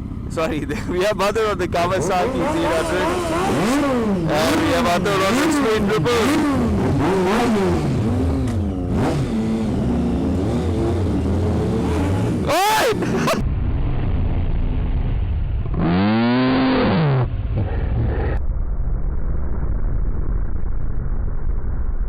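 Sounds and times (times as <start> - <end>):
motorcycle engines revving: 0.0 - 13.4, 14.9 - 18.4.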